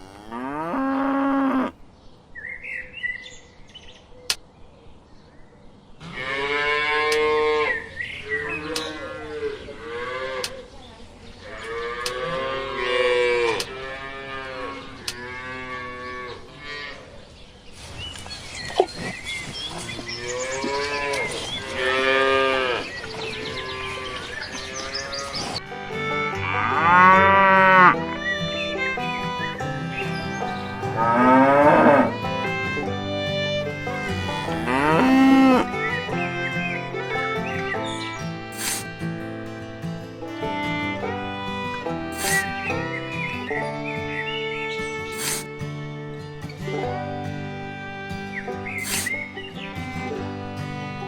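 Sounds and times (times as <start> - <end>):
cattle mooing: 0.0 - 1.8, 11.6 - 17.0, 19.9 - 25.6, 26.2 - 28.2, 30.8 - 32.1, 33.8 - 36.8.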